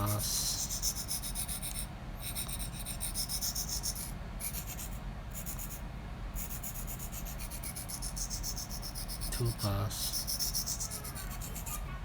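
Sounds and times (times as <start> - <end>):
blade scraping on sharpening plate: 10.1 - 11.7.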